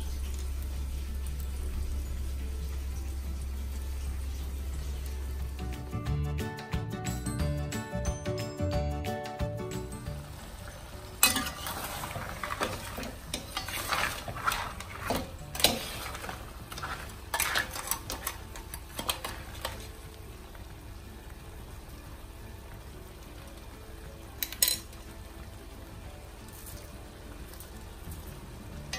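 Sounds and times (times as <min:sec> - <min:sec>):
sauce sizzling: 0:00.0 - 0:08.4, 0:09.4 - 0:28.9
metal spatula scraping a pan: 0:11.2 - 0:20.0.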